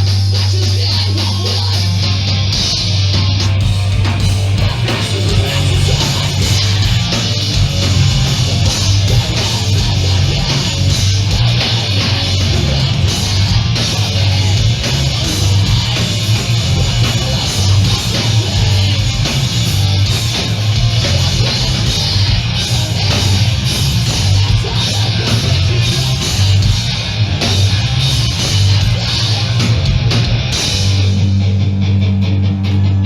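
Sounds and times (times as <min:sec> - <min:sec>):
punk band playing loud: 0:00.0 - 0:33.0
pounding drums: 0:02.7 - 0:31.2.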